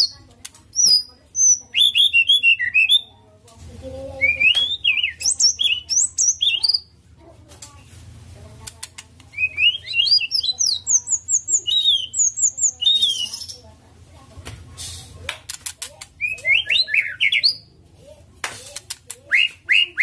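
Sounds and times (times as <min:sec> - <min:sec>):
bird whistling song: 0:00.8 - 0:03.1, 0:04.2 - 0:06.9, 0:09.3 - 0:13.6, 0:16.2 - 0:17.7, 0:19.3 - 0:20.0.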